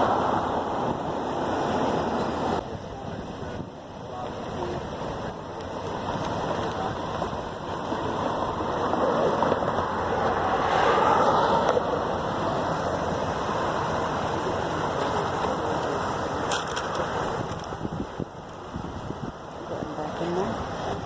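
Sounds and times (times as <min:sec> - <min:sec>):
vehicle passing on road: 0:05.0 - 0:21.0.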